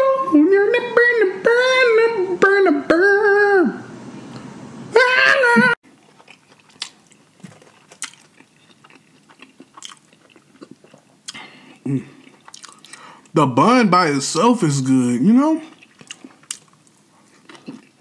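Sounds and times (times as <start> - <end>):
wet chewing and mouth clicks: 5.8 - 13.4, 15.6 - 18.0.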